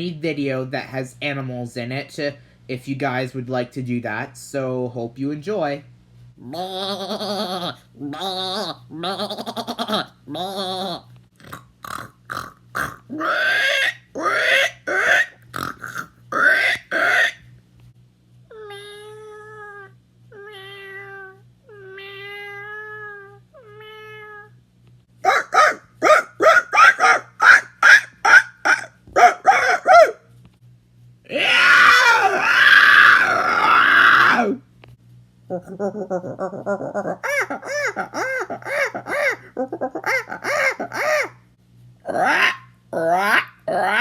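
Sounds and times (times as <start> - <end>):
man imitating animal calls: 6.4 - 17.4, 25.2 - 30.2, 31.3 - 34.6, 35.5 - 41.4, 42.0 - 44.0.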